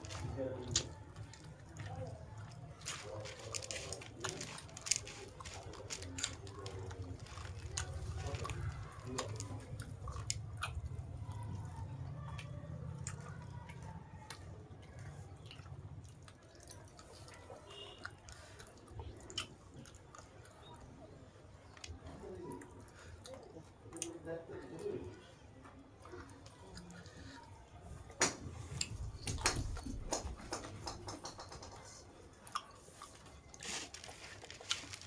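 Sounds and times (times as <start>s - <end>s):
person chewing crunchy food: 0.0s - 20.9s, 32.4s - 35.0s.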